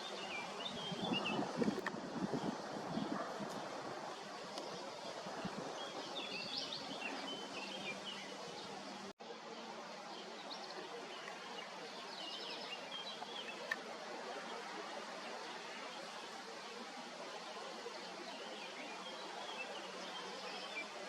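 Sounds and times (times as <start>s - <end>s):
small birds chirping: 0.0s - 9.1s, 10.1s - 14.6s
outdoor background noise: 0.0s - 21.0s.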